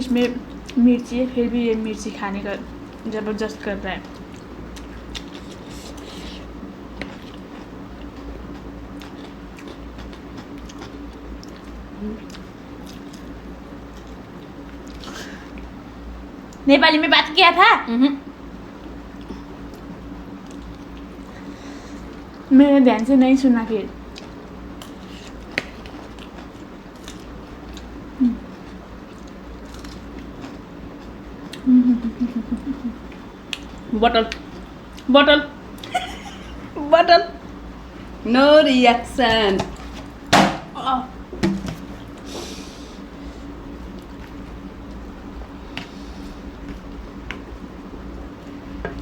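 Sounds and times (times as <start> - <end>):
electric fan humming: 0.0 - 49.0
person chewing crunchy snack: 4.1 - 15.2, 24.1 - 27.9, 28.5 - 31.7.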